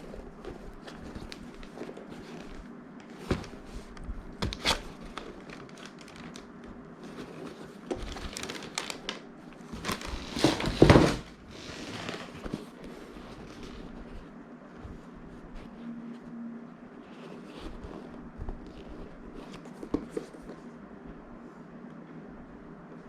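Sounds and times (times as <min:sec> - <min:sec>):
packaging crinkling and rustling: 0:00.0 - 0:14.2.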